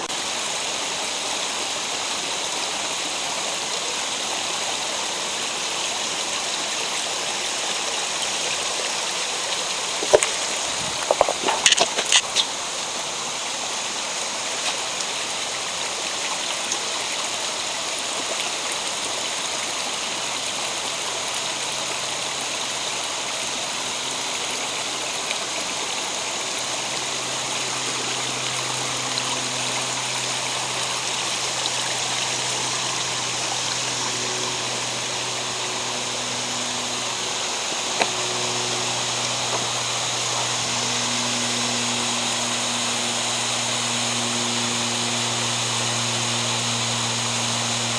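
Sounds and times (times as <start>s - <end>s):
mountain stream rushing: 7.2s - 42.4s.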